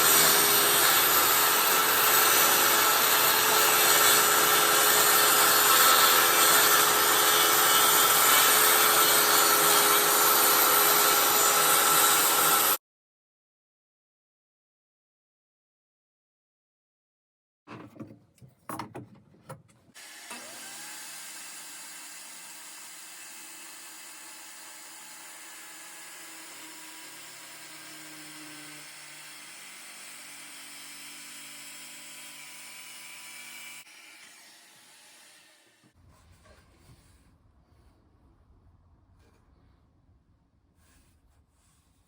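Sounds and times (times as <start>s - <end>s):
circular saw cutting wood: 0.0s - 12.8s, 20.0s - 36.0s.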